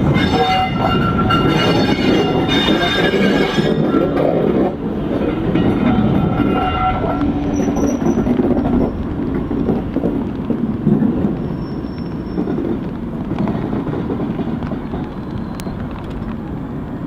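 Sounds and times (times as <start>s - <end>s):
train wheel and rail noise: 0.0s - 17.0s.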